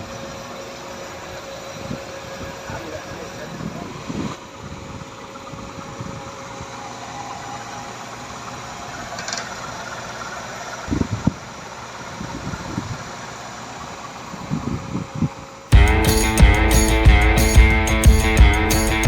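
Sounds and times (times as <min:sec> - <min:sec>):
bus engine idling: 0:00.0 - 0:19.0
low thumps: 0:15.7 - 0:19.0.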